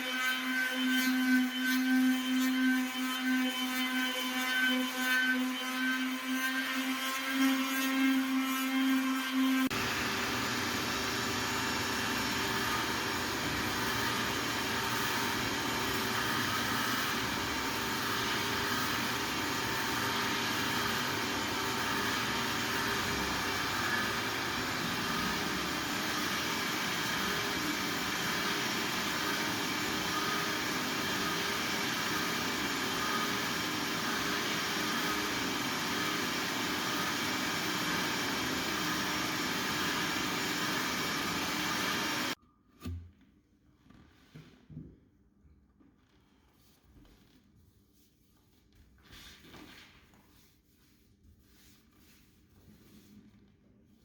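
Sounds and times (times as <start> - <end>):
floor machine whirring: 9.4 - 42.4
motor hum: 9.7 - 42.4.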